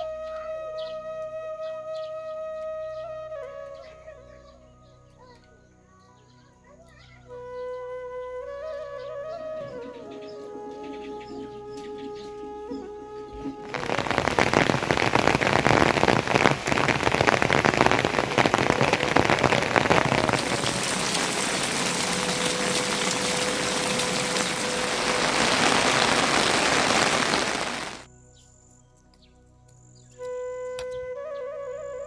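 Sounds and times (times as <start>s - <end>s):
rain pouring down: 13.6s - 28.1s.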